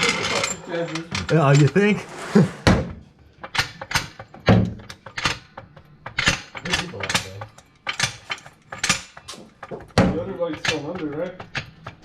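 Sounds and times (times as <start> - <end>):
hand tools clicking on metal: 3.4 - 12.0.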